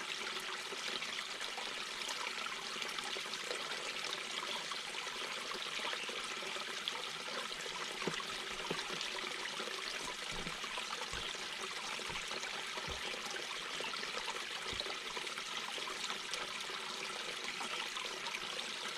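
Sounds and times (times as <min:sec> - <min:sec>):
brook babbling over rocks: 0:00.0 - 0:18.9
water gurgles and plops: 0:05.6 - 0:18.8.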